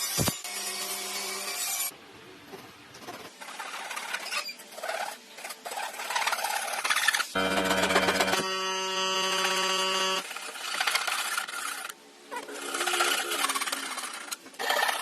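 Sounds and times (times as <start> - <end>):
power tool motor whining: 7.4 - 10.2.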